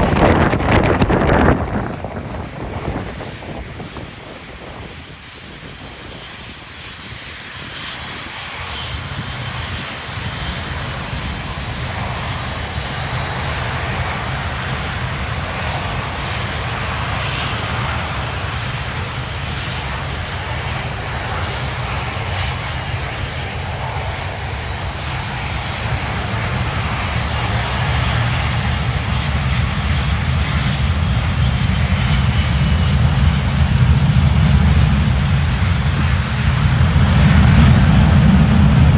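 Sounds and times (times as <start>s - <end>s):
jet engines rumbling and whining: 0.0s - 38.9s.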